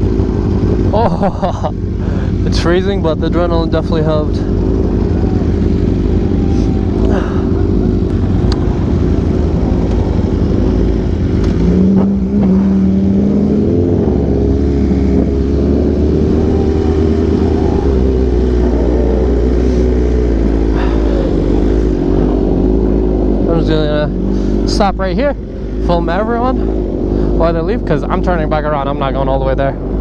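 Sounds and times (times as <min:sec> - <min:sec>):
motorcycle engine running: 0:00.0 - 0:30.0
steady tone: 0:02.6 - 0:30.0.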